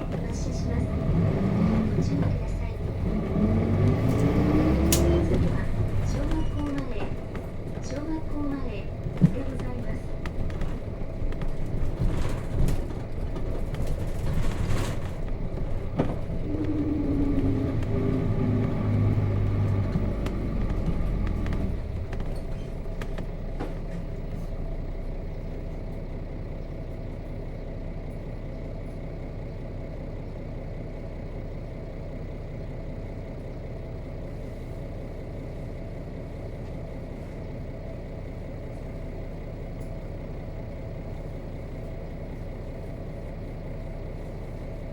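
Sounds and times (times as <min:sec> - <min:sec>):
engine knocks: 0:00.0 - 0:29.6
diesel bus engine slowing down: 0:00.0 - 0:44.9.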